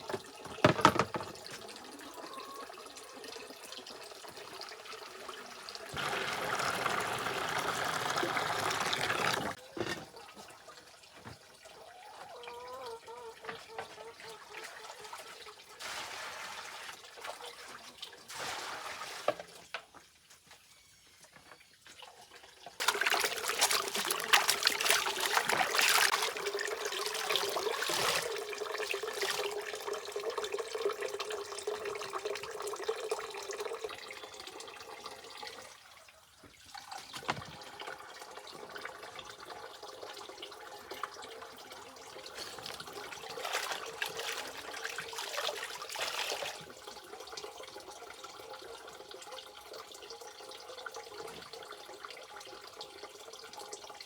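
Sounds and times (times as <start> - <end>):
water running and splashing: 0.0 - 12.0, 22.7 - 35.7, 36.4 - 48.2.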